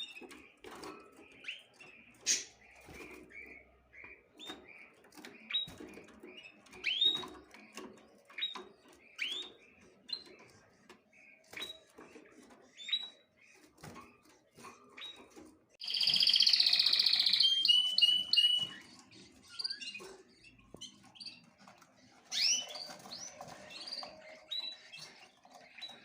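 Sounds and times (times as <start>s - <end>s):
rustling and scratching: 0.0s - 15.8s, 16.8s - 26.0s
small birds chirping: 0.0s - 26.0s.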